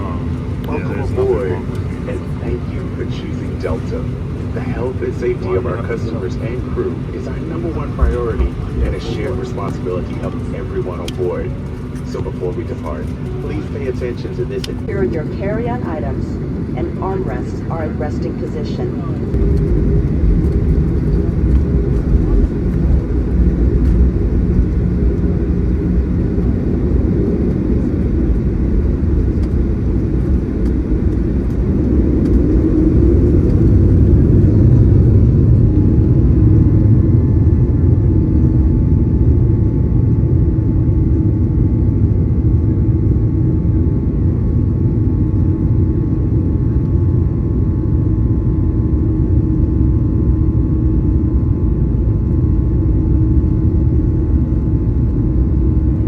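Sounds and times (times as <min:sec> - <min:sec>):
faint steady whine: 0:00.0 - 0:44.2
jet engine cabin rumble: 0:00.0 - 0:56.0.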